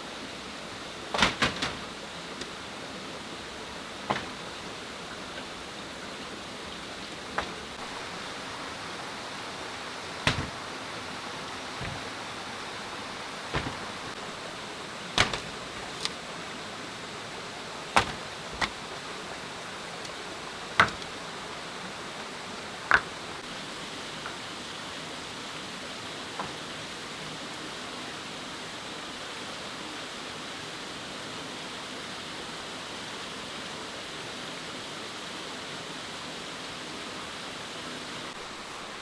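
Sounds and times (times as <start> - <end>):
steady rushing hiss: 0.0 - 39.0
sharp knocks: 1.1 - 2.0, 4.1 - 4.6, 7.3 - 8.2, 10.1 - 11.0, 11.7 - 12.7, 13.4 - 14.2, 15.2 - 16.1, 18.0 - 18.9, 20.8 - 21.2, 22.9 - 23.2.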